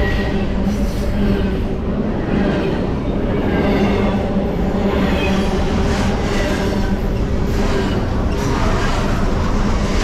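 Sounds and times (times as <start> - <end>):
freight train rumbling past: 0.0 - 10.0.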